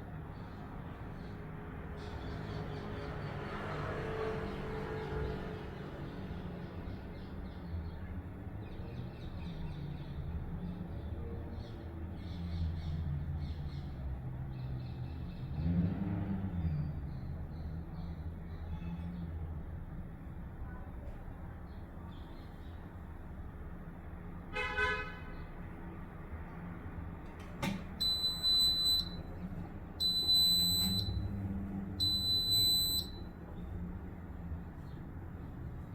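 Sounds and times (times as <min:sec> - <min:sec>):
washing machine humming: 0:27.8 - 0:33.3.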